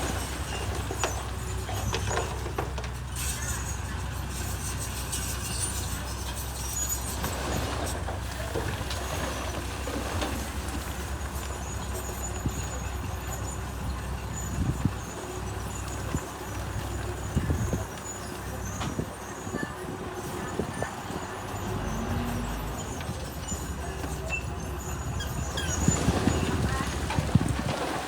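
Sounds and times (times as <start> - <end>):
knocks and clanks: 0.0 - 3.4
bulldozer diesel engine running: 0.0 - 28.0.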